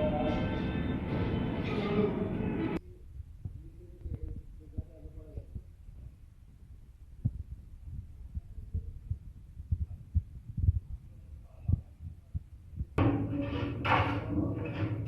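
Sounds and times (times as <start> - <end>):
steady hum and noise bursts: 0.0 - 15.0
wind buffeting microphone: 2.8 - 13.0.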